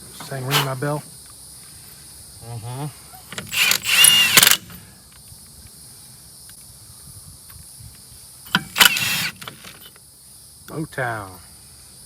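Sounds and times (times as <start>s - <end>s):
insects chirring: 0.0s - 12.0s
hissing whirring burst: 0.4s - 0.9s, 3.3s - 4.8s, 8.6s - 9.7s.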